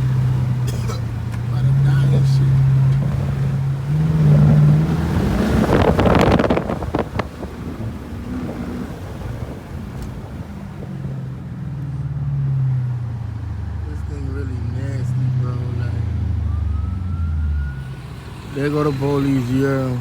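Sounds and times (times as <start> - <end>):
car exhaust droning: 0.0 - 20.0
wind noise on microphone: 3.0 - 11.4.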